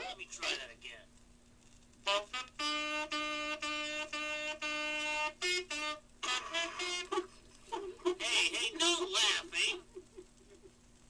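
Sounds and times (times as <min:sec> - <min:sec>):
wind instrument notes: 0:02.0 - 0:07.3.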